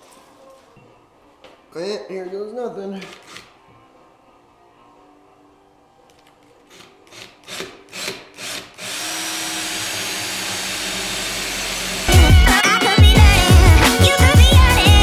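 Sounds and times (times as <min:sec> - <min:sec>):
power drill drilling sheet metal: 0:07.1 - 0:13.0
loud music with heavy beat: 0:12.1 - 0:15.0.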